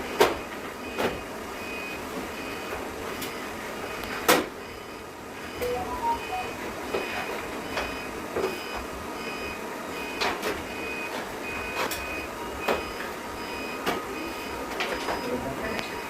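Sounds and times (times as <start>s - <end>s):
short high electronic beeps: 5.6s - 6.6s.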